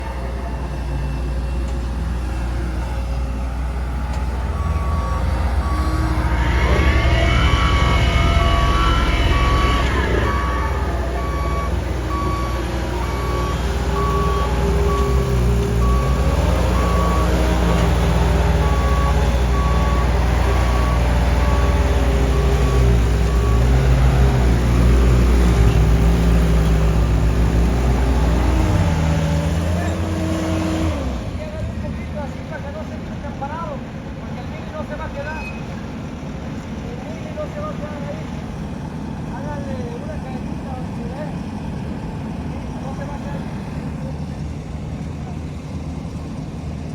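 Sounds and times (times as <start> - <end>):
diesel engine rumbling: 0.0 - 46.9
backup alarm beeping: 3.9 - 24.0.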